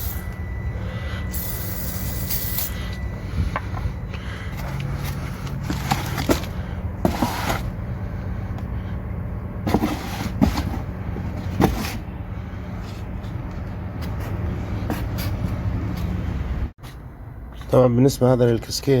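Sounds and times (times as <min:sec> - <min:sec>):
steady low hum: 0:00.0 - 0:18.8
tools and parts clinking: 0:01.3 - 0:06.5.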